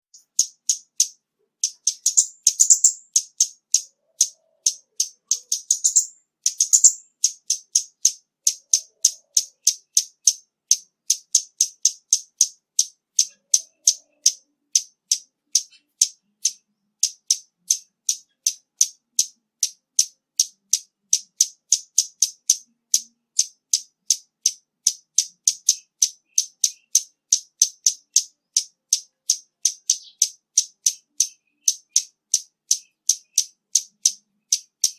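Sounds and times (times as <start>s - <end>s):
bird chip notes: 0.1s - 10.0s
bird twittering: 0.1s - 34.9s.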